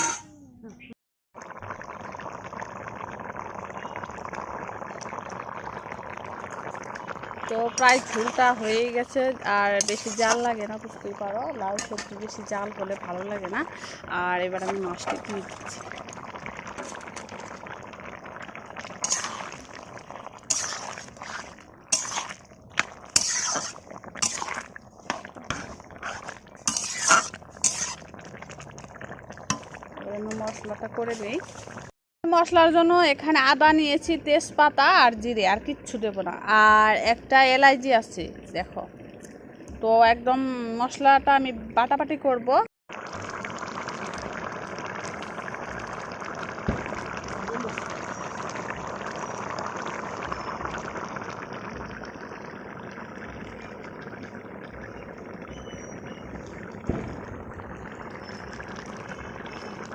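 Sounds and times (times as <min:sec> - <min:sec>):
metal utensils clinking and scraping: 0:00.0 - 0:00.4, 0:07.8 - 0:08.9, 0:09.8 - 0:10.6, 0:11.8 - 0:12.2, 0:23.2 - 0:28.0
curry bubbling and simmering: 0:01.4 - 0:32.0, 0:33.0 - 0:59.9.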